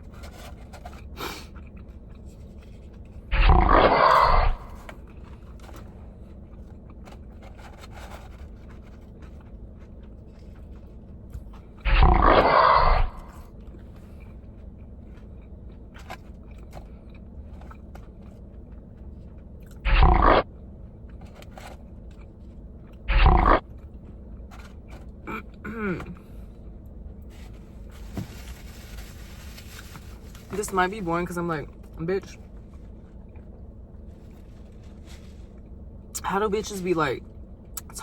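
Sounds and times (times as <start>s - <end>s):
chewing crunchy food: 0.0s - 27.9s.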